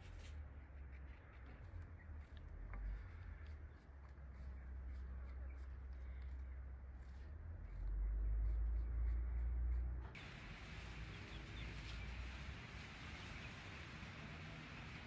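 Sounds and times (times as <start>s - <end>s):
outdoor background hiss: 10.0s - 15.0s.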